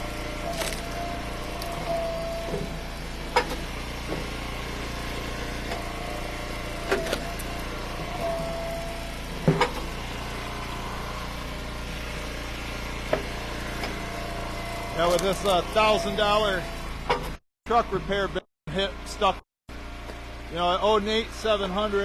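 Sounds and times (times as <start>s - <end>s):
hydraulic pump whining: 0.0s - 22.0s
wood splitter running: 0.0s - 22.0s.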